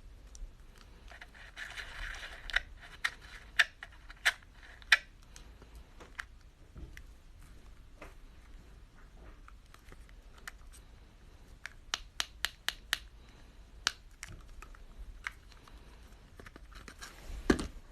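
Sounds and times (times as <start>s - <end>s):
fidget toy clicks and taps: 11.9s - 13.1s.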